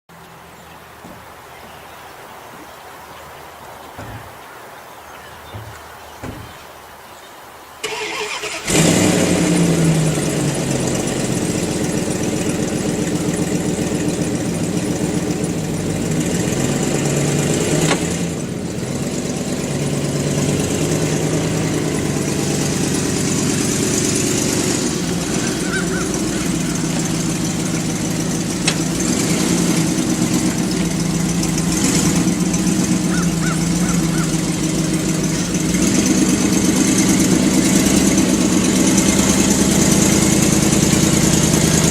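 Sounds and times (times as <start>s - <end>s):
vehicle engine running: 0.1s - 7.2s, 7.8s - 41.9s.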